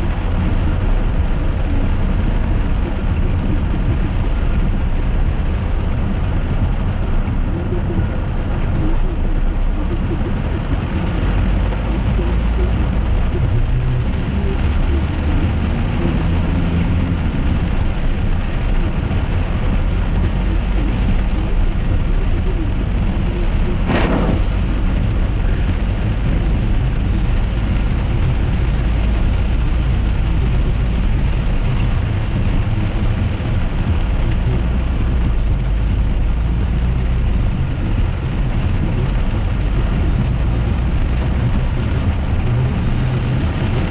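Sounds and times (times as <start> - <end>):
car road and engine rumble: 0.0 - 43.9
rain on car: 0.0 - 43.9.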